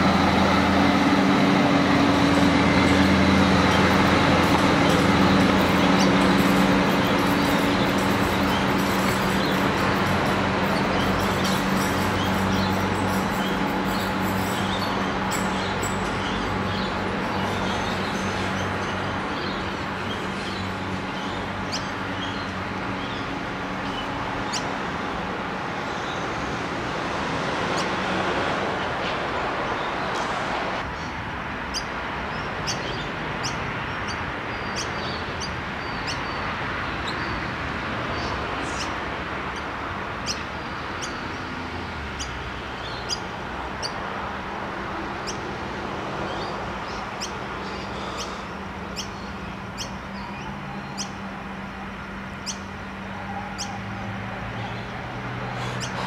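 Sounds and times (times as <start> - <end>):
diesel railcar hum: 0.0 - 56.0
outdoor background noise: 0.0 - 56.0
bird chirping: 42.2 - 44.0, 46.3 - 51.2, 52.4 - 52.8.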